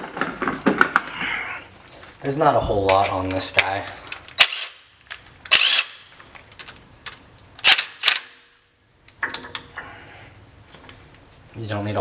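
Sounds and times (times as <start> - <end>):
impact wrench bursts: 4.4 - 4.9, 5.5 - 6.1, 7.6 - 8.4.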